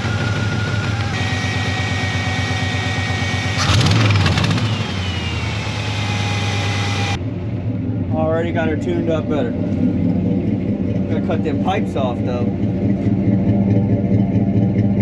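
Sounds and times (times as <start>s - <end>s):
thin high whistle: 0.0s - 3.7s
rough engine burst: 0.0s - 7.2s
pickup engine idling: 0.0s - 15.0s.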